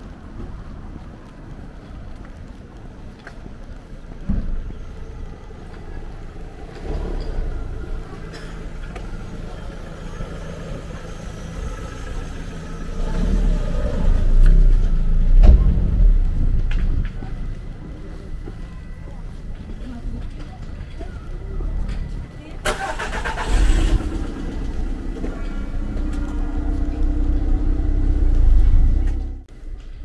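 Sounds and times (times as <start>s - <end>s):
car engine humming: 4.3s - 29.7s.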